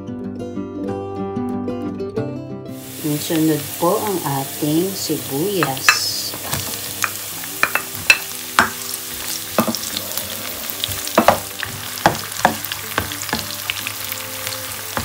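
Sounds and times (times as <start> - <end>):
onion and garlic sizzling in oil: 2.8 - 15.0
spatula scraping and knocking pan: 5.6 - 10.0, 10.8 - 13.8.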